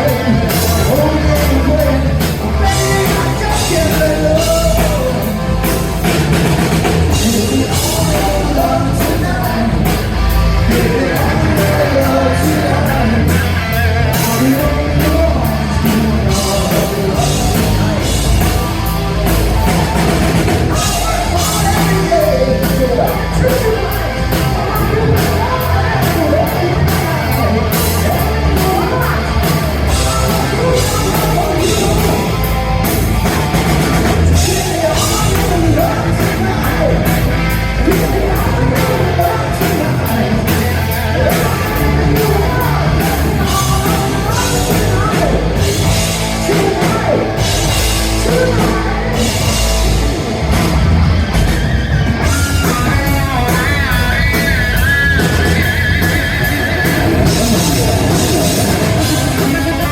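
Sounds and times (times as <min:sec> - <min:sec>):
live hard rock band: 0:00.0 - 0:59.9.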